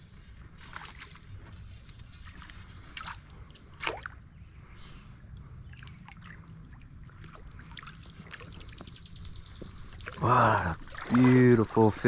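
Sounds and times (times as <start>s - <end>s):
low rumble of moving water: 0.0s - 12.0s
water splashing: 2.2s - 4.2s, 5.4s - 8.8s, 9.8s - 12.0s
water dripping: 9.6s - 12.0s.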